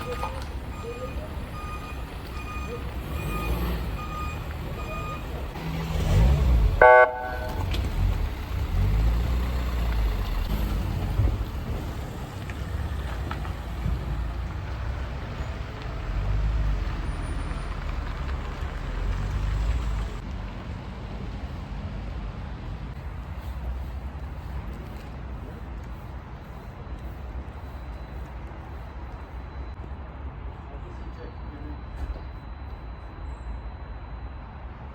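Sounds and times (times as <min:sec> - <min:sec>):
traffic rumble: 0:00.0 - 0:34.9
beeper tone: 0:06.8 - 0:07.8
vehicle horn toot: 0:06.8 - 0:07.8.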